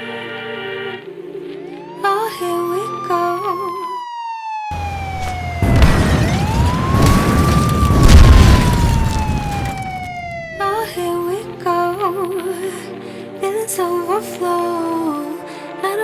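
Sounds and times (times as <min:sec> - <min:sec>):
siren wailing: 0:01.6 - 0:11.1
explosion booms: 0:04.7 - 0:11.0.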